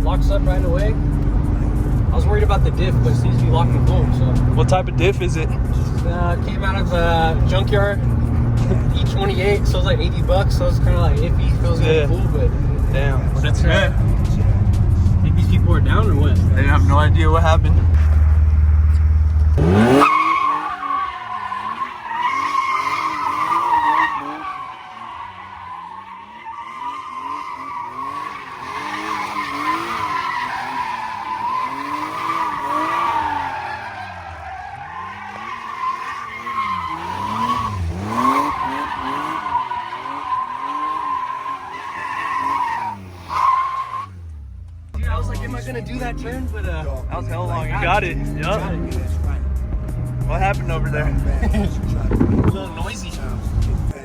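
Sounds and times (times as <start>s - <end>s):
engine at high revs: 0.0s - 45.0s, 45.9s - 54.0s
tyres squealing: 18.8s - 44.3s, 47.8s - 54.0s.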